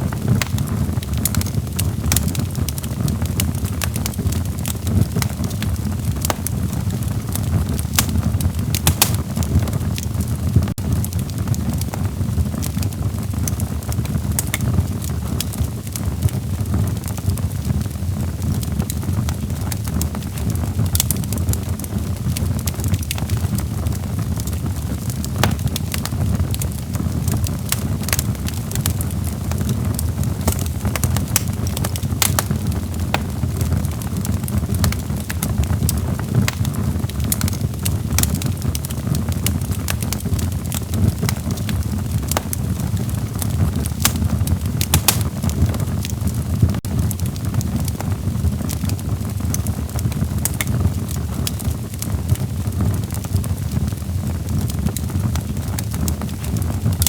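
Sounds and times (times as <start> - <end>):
burning logs crackling: 0.0 - 57.0
low rumble of flames: 0.0 - 57.0
sharp pops: 7.8 - 9.5, 25.3 - 26.2, 30.4 - 33.7, 44.0 - 45.7.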